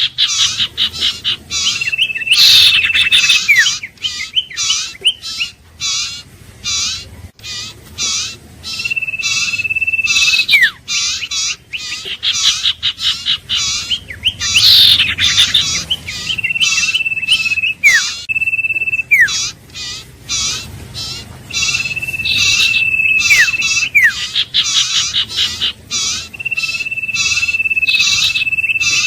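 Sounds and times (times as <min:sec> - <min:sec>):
bird high chirps: 0:00.0 - 0:29.0
bird drawn-out whistle: 0:01.6 - 0:05.5, 0:08.1 - 0:11.9, 0:13.0 - 0:19.6, 0:20.4 - 0:25.2, 0:26.0 - 0:29.0.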